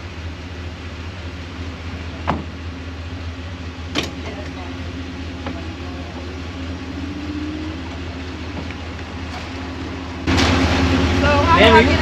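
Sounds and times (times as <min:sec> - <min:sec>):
vehicle engine idling: 0:00.0 - 0:12.0
loud rush of noise: 0:05.1 - 0:12.0.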